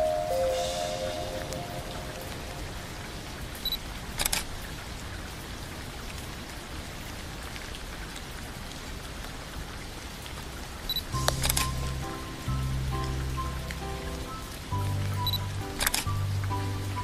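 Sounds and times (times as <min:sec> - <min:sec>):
steady rain falling: 0:00.0 - 0:17.0
sharp clicks: 0:11.2 - 0:11.8, 0:15.3 - 0:16.1.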